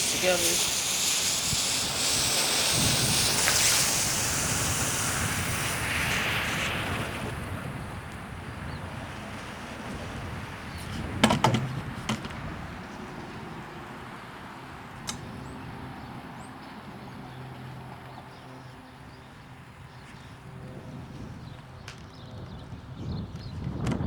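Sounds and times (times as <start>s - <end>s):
firecrackers popping: 0.0s - 7.5s
wind noise: 0.0s - 16.5s, 19.7s - 24.0s.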